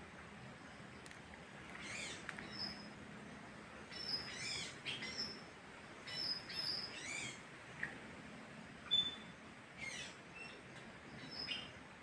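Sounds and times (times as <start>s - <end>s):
faint steady hiss: 0.0s - 12.0s
birds calling: 0.8s - 3.1s, 3.8s - 7.9s, 8.8s - 11.9s.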